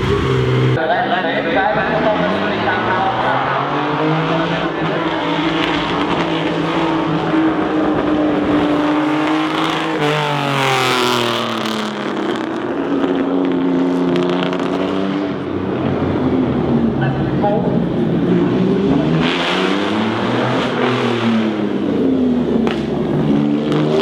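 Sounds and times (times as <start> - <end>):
car driving past: 0.0 - 12.4
sports car engines running: 0.0 - 24.0.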